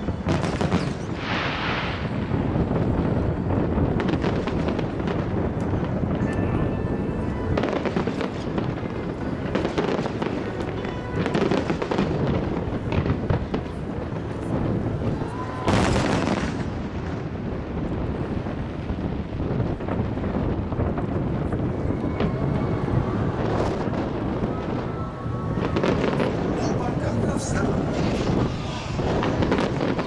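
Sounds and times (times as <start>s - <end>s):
fireworks booming: 0.0s - 30.0s
fireworks crackling: 0.0s - 30.0s.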